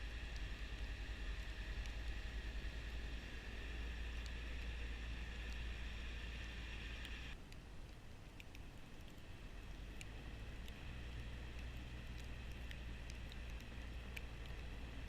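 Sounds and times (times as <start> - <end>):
high-pitched whine: 0.0 - 7.4
light ticks: 0.0 - 15.0.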